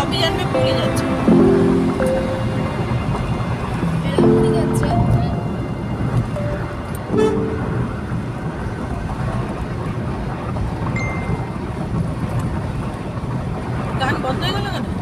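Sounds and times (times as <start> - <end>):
car driving on highway: 0.0 - 15.0
short car horn toot: 7.1 - 7.9.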